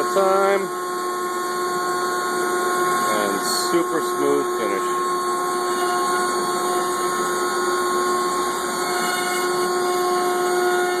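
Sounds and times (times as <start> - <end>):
router spindle whining: 0.0 - 11.0.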